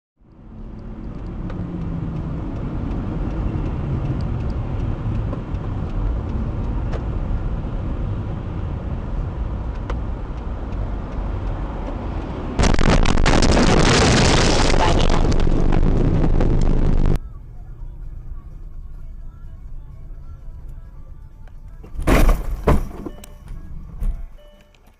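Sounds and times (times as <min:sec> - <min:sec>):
car engine and road noise: 0:00.2 - 0:24.9
loud harsh noise: 0:12.6 - 0:17.2.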